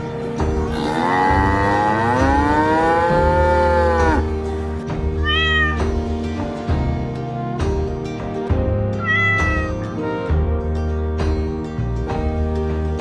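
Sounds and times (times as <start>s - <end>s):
background music: 0.0s - 13.0s
cat meowing: 5.2s - 5.9s, 9.0s - 9.9s.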